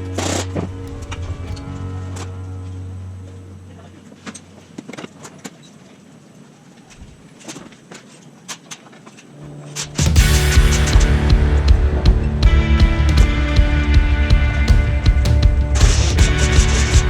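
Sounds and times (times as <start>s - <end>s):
background music: 0.0s - 4.4s, 9.4s - 17.0s.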